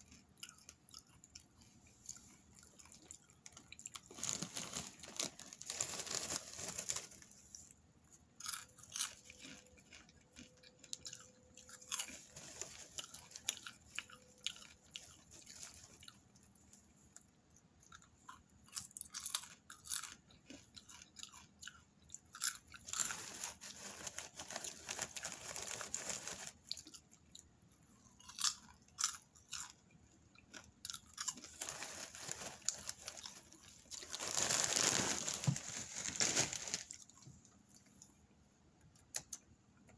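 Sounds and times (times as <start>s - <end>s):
popcorn crunching and chewing: 0.0s - 38.2s
plastic bag rustling: 4.0s - 7.7s, 11.9s - 13.5s, 22.9s - 26.7s, 31.4s - 37.2s.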